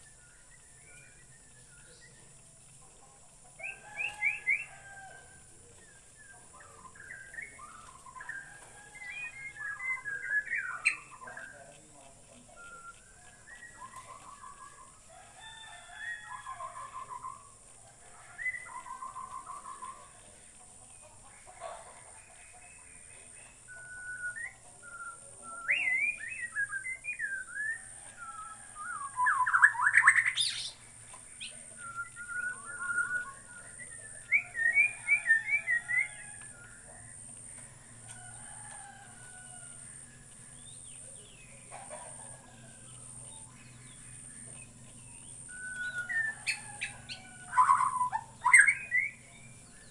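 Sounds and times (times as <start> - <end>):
bird singing whistled song: 0.0 - 2.3, 3.6 - 5.0, 5.8 - 11.6, 12.5 - 14.8, 18.3 - 20.0, 22.7 - 39.6, 40.5 - 49.9
bird rattling call: 5.8 - 49.9.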